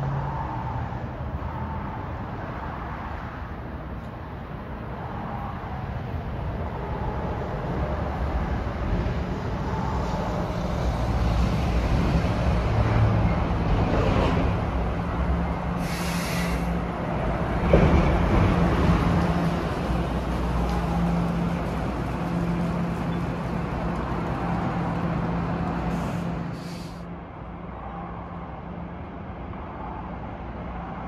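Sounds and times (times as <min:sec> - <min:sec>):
train rumbling: 0:00.0 - 0:29.6
short hiss: 0:15.8 - 0:16.7, 0:25.9 - 0:27.0.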